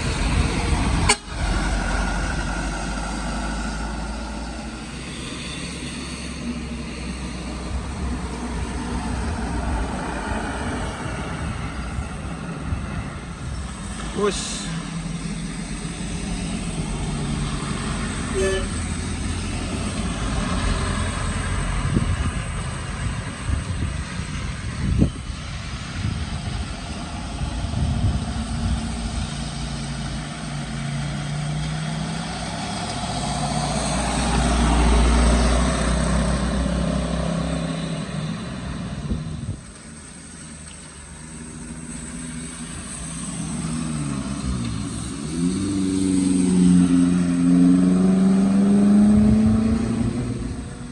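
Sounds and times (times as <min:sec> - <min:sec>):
trucks driving slowly: 0:00.0 - 0:50.9
engine revving up: 0:27.1 - 0:39.1, 0:41.5 - 0:50.9.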